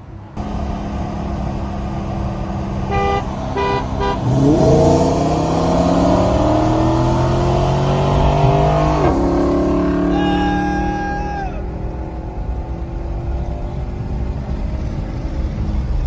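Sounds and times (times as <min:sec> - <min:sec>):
car engine accelerating: 0:00.4 - 0:16.0
car horn beeps: 0:02.8 - 0:04.7.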